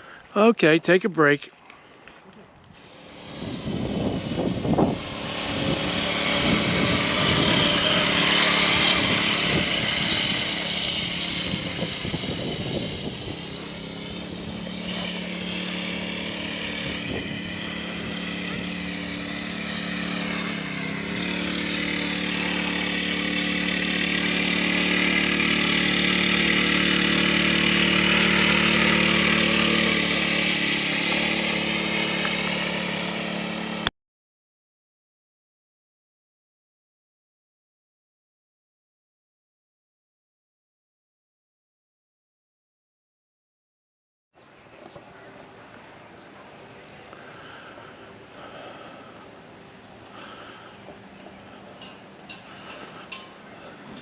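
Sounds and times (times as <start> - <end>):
vehicle engine running: 2.8 - 33.9, 44.7 - 54.0.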